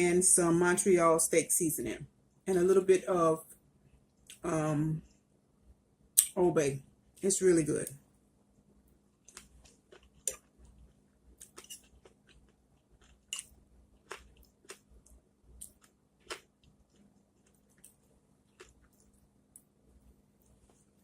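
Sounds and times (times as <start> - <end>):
person chewing food: 9.2 - 19.8.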